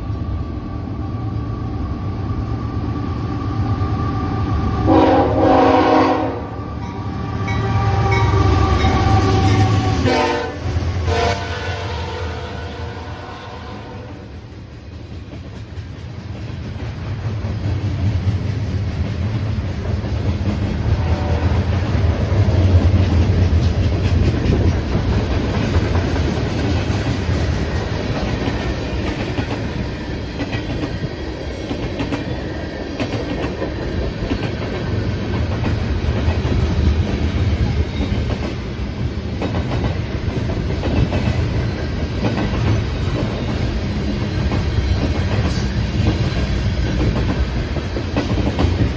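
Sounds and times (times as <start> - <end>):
train rumble: 0.0 - 48.9
train wheels clicking on rail joints: 14.4 - 48.9.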